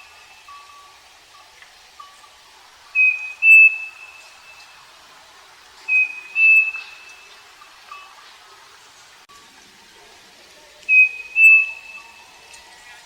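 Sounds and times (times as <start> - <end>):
bird two-note whistled song: 3.0 - 4.7, 5.9 - 7.4, 10.9 - 12.4.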